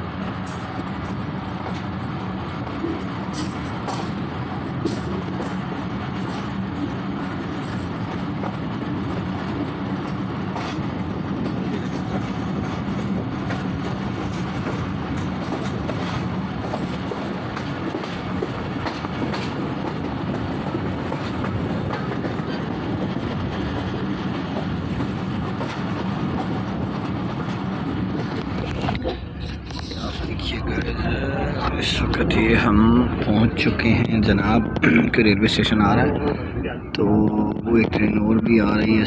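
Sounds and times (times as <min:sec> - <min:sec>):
train carriage rumbling: 0:00.0 - 0:39.0
wheels clicking over rail joints: 0:04.8 - 0:29.1.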